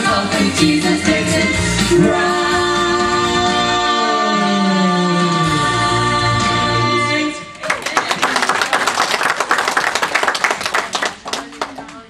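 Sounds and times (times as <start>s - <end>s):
vocal group singing: 0.0s - 7.6s
congregation applauding: 7.6s - 12.0s.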